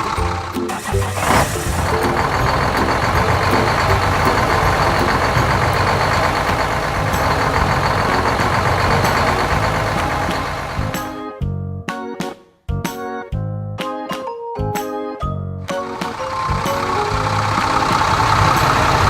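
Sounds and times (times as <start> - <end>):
heavy vehicle engine running: 0.0 - 11.2, 15.7 - 19.0.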